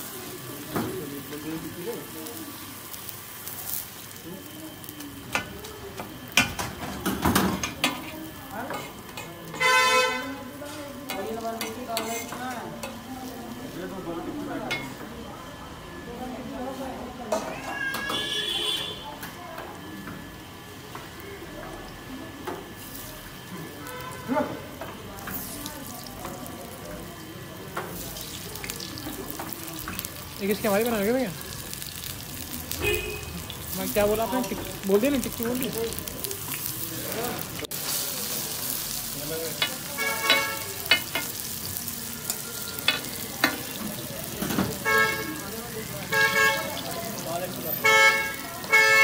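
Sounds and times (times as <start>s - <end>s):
food sizzling on a griddle: 0.0s - 49.0s
murmur of voices: 0.0s - 49.0s
metal spatula clanking and scraping: 11.1s - 13.0s.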